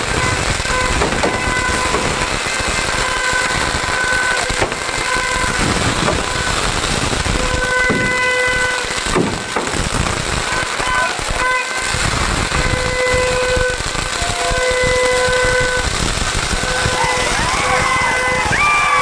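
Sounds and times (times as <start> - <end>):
horn tooting: 0.0 - 9.5, 10.4 - 19.0
sharp bangs: 0.0 - 19.0
crowd din: 16.2 - 19.0.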